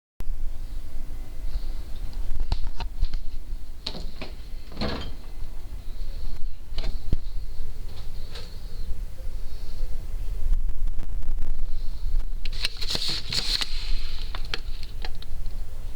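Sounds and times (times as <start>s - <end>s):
scraping rustle: 12.5s - 15.0s.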